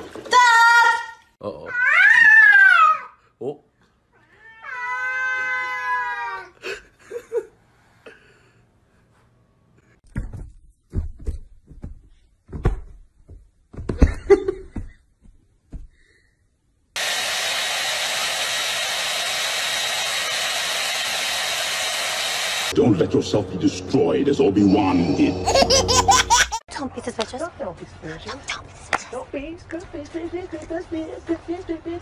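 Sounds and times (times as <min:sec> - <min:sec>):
hair dryer blowing: 0:17.0 - 0:22.8.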